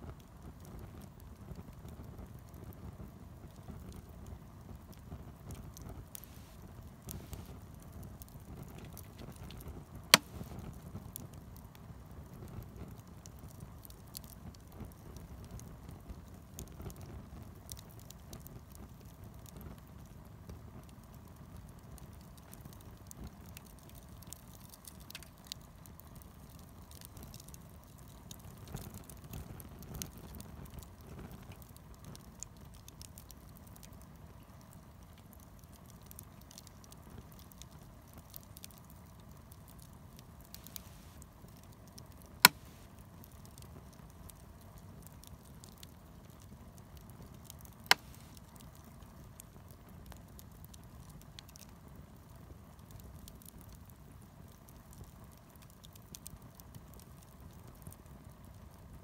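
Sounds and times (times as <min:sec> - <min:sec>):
fire crackling: 0:00.0 - 0:59.0
wood fire burning: 0:00.0 - 0:59.0
loud sharp pops: 0:10.1 - 0:10.6, 0:42.4 - 0:42.9, 0:47.9 - 0:48.4.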